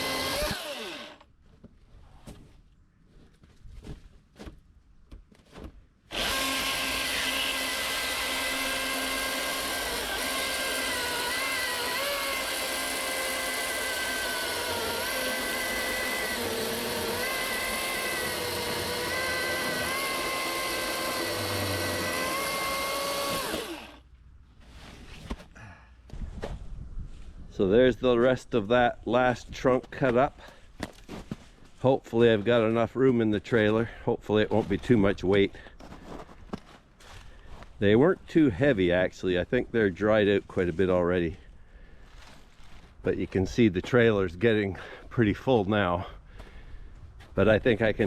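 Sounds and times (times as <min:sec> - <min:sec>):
chainsaw cutting wood: 0:00.0 - 0:01.3, 0:06.1 - 0:24.0.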